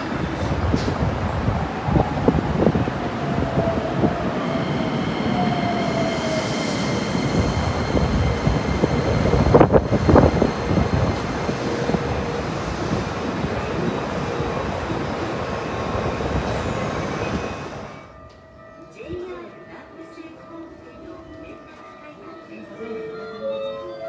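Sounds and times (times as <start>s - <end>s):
train wheels rumbling on rail: 0.0s - 18.2s.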